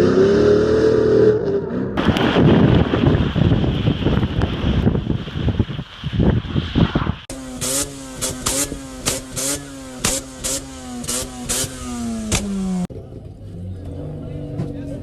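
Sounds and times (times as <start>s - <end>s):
wind on microphone: 2.0s - 7.3s
sharp exhaust pops: 2.0s - 12.9s
car engine at high revs: 7.2s - 14.9s.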